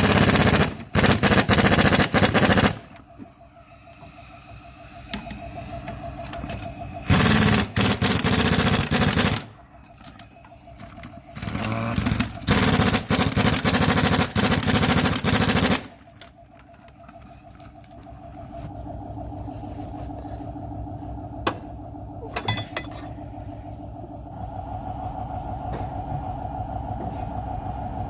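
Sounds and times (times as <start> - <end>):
car engine idling and revving: 0.0 - 28.0
engine rattling clatter: 0.0 - 28.0.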